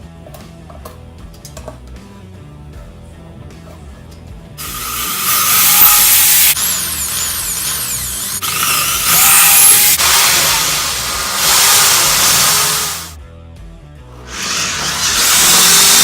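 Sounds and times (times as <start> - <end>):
power drill whining: 4.6 - 13.2, 14.2 - 16.0.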